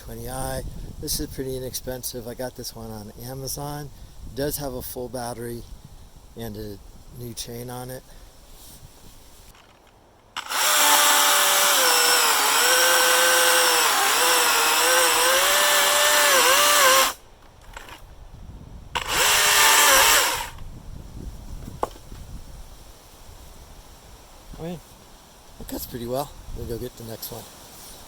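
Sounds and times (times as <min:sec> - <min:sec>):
battery chainsaw cutting wood: 0:10.4 - 0:18.0, 0:19.0 - 0:20.6.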